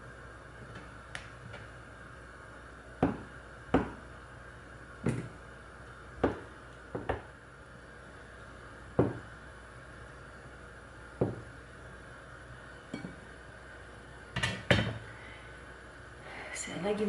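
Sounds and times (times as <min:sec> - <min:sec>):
knife knocking on wooden cutting board: 0:09.0 - 0:09.2, 0:11.2 - 0:11.4.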